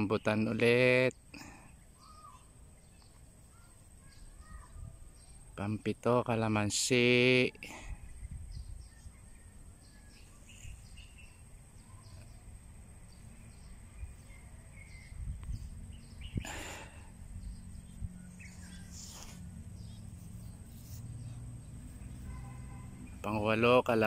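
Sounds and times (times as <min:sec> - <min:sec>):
birds chirping: 0:00.0 - 0:24.0
low outdoor rumble: 0:07.9 - 0:24.0
brief rustles: 0:18.4 - 0:21.4.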